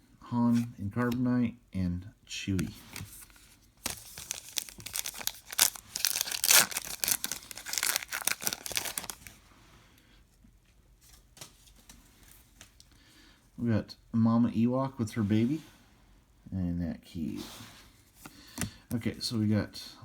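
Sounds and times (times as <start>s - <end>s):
foil wrapper tearing and crinkling: 3.8s - 9.4s.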